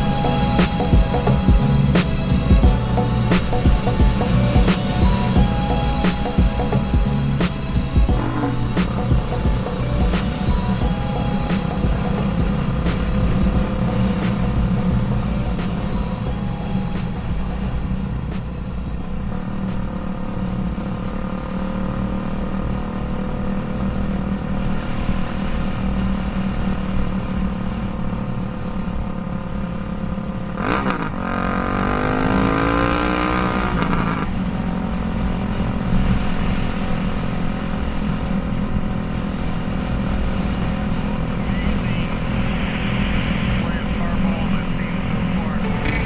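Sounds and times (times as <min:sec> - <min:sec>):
pitched sound bending up and down: 0:00.0 - 0:17.8
motorcycle engine drone: 0:00.0 - 0:46.0.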